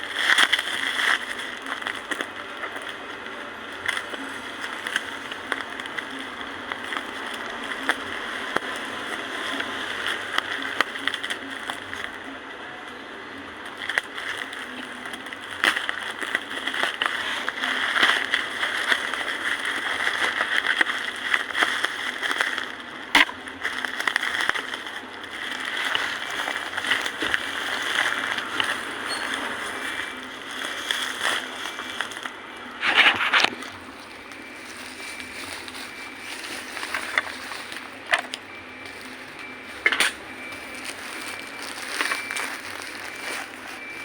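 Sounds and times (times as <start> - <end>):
packaging rustling and crinkling: 0.0 - 12.4, 13.6 - 44.0.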